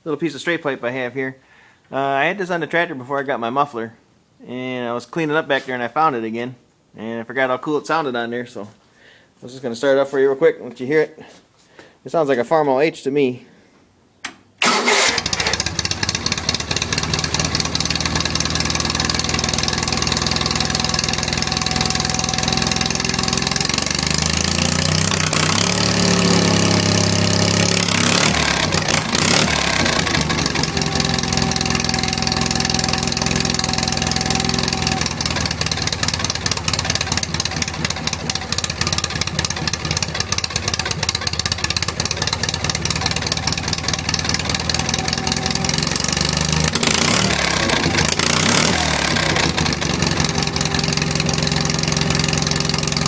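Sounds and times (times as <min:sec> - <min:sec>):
tractor engine running and revving: 0:14.6 - 0:53.0.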